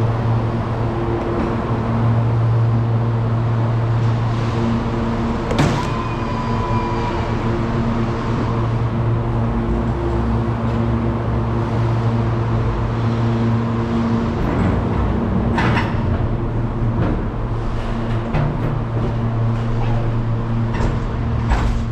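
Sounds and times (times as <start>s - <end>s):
clunk: 15.6s - 21.9s
truck diesel engine running: 15.9s - 21.9s.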